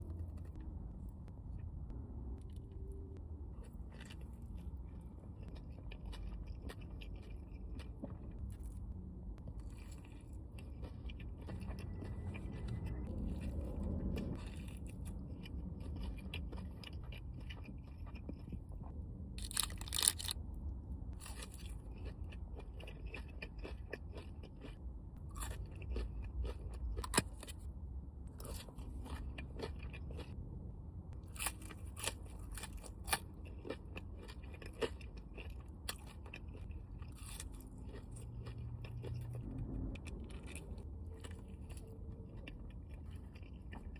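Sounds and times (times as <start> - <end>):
person chewing crunchy food: 2.4 - 30.4, 31.1 - 43.9.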